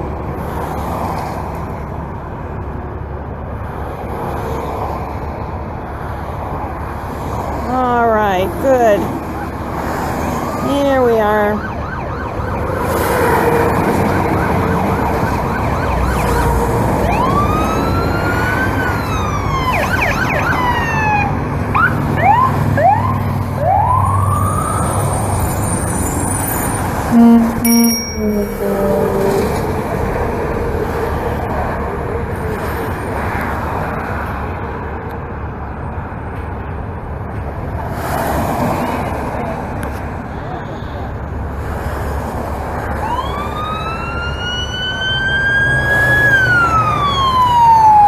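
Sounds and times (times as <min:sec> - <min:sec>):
traffic rumble: 0:00.0 - 0:48.0
police sirens: 0:08.2 - 0:34.4, 0:42.6 - 0:48.0
loud horn blast: 0:27.0 - 0:29.9.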